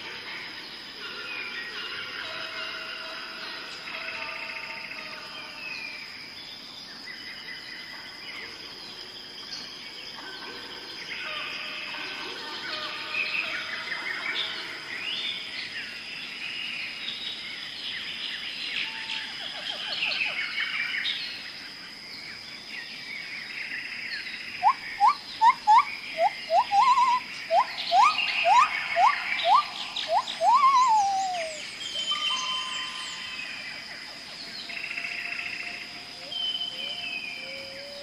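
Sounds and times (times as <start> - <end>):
birds chattering and chirping: 23.7 - 38.0
rising whistled bird calls: 24.6 - 33.6
steady high-pitched tone: 24.6 - 33.8.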